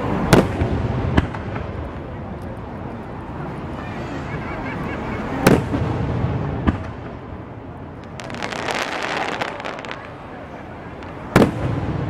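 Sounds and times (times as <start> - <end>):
firework bang: 5.4 - 7.1, 8.0 - 10.2, 11.0 - 12.0.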